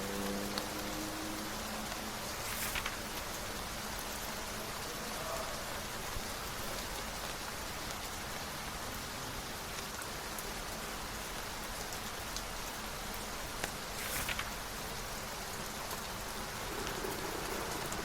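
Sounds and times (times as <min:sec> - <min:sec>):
steady rain falling: 0:00.0 - 0:18.0
raindrop ticks: 0:00.1 - 0:05.4, 0:09.6 - 0:18.0
swish: 0:14.0 - 0:14.6, 0:16.2 - 0:18.0.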